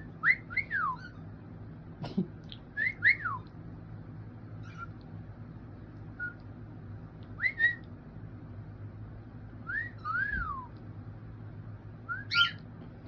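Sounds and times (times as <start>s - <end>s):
low steady hum: 0.0s - 13.0s
cockatiels whistling: 0.2s - 1.2s, 7.4s - 7.9s, 9.6s - 10.7s, 12.1s - 12.6s.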